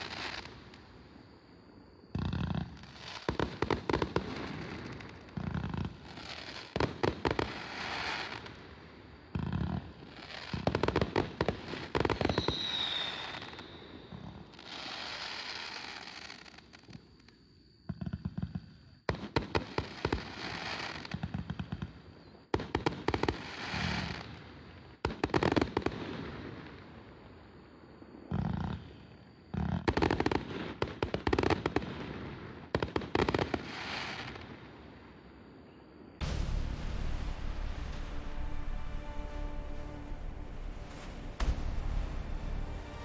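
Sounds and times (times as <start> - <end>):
fireworks firing rapid shots: 2.2 - 8.5, 10.4 - 13.5, 19.1 - 21.3, 22.6 - 24.2, 29.8 - 34.4, 36.2 - 43.0
fireworks crackling: 9.4 - 14.0, 36.2 - 43.0
falling whistle: 12.2 - 14.2.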